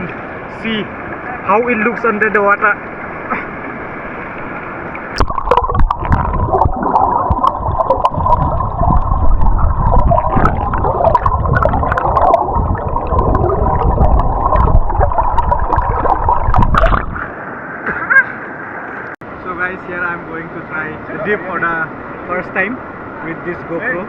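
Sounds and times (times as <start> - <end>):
underwater river rushing: 0.0 - 19.2
underwater clicks and gurgles: 4.3 - 17.3.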